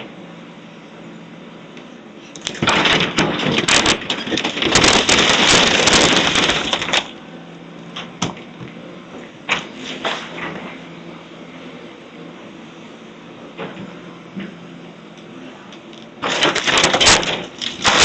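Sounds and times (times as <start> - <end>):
low machine hum: 0.0 - 18.0
debris crashing and splintering: 2.4 - 7.2, 16.2 - 18.0.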